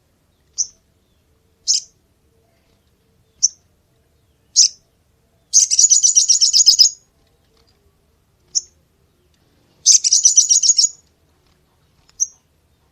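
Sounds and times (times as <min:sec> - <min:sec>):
bird twittering trills: 0:00.4 - 0:02.0, 0:03.2 - 0:07.0, 0:08.5 - 0:08.8, 0:09.8 - 0:11.1, 0:12.1 - 0:12.5.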